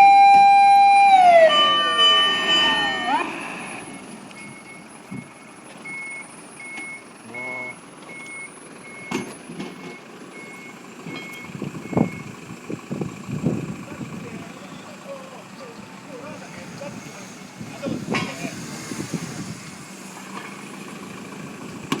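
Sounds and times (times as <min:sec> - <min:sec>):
truck reversing alarm beeping: 0:00.0 - 0:12.4.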